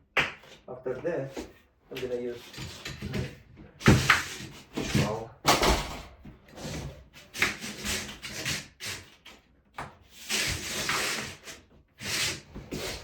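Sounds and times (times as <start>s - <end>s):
trowel scraping floor: 6.5s - 13.0s.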